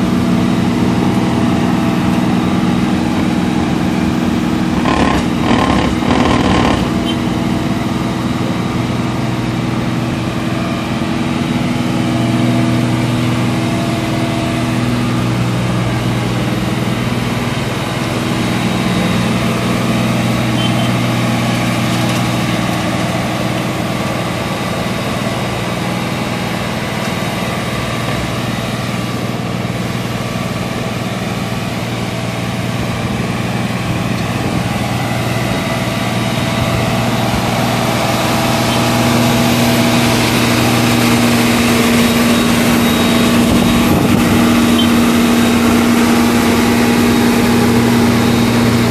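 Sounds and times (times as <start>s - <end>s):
work site noise: 0.0s - 48.9s
machinery engine idling: 2.0s - 9.5s.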